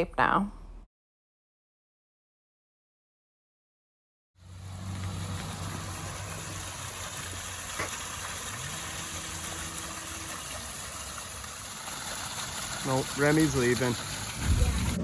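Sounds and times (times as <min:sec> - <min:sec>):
waterfall splashing into basin: 0:04.4 - 0:15.0.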